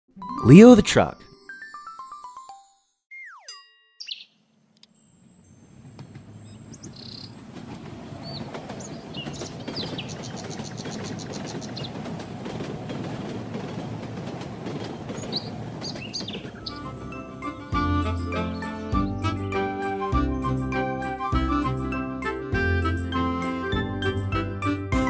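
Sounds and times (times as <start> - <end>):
train rumbling along track: 5.6 - 17.7
birds chirping: 6.4 - 7.5, 8.1 - 12.1, 15.0 - 17.0.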